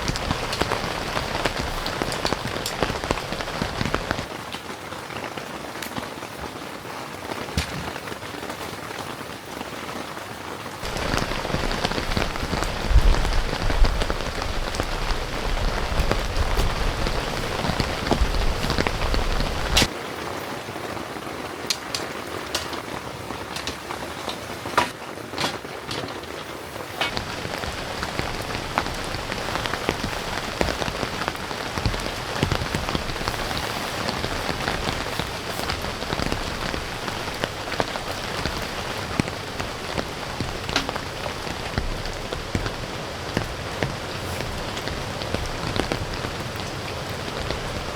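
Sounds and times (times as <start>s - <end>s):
heavy rain falling: 0.0s - 47.9s
sharp drips: 27.1s - 47.9s.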